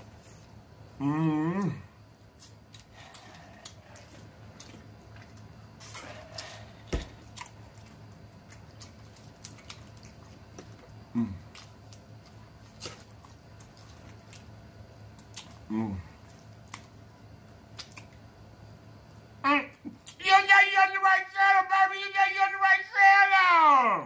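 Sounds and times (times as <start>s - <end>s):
person humming mm: 1.0s - 1.9s, 11.1s - 11.4s, 15.7s - 16.1s
wet chewing and lip-smacking: 7.2s - 18.4s.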